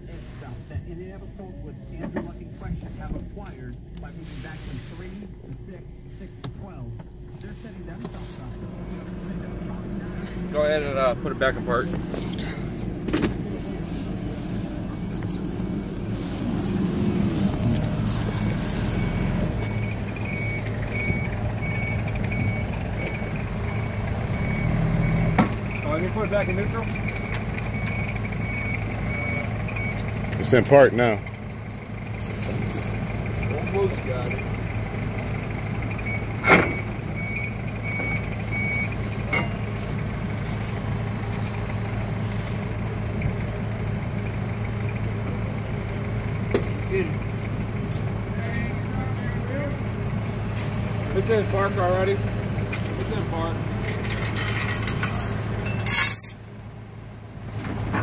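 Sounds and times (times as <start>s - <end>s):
truck engine rumbling: 0.0s - 58.0s
truck backup alarm beeping: 15.0s - 32.2s, 32.8s - 41.2s.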